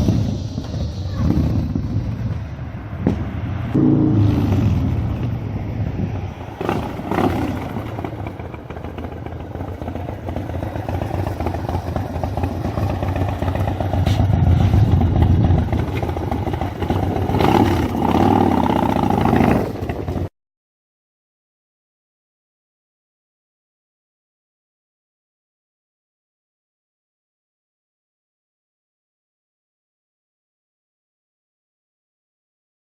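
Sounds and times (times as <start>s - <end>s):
motorcycle engine revving: 0.0s - 20.3s.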